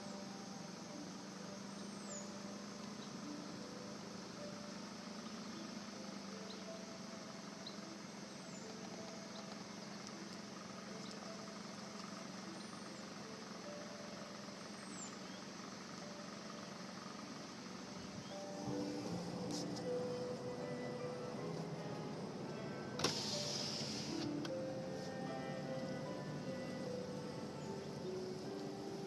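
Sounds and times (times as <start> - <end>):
car engine idling: 0.0 - 29.0
faint high chirps: 0.0 - 29.0.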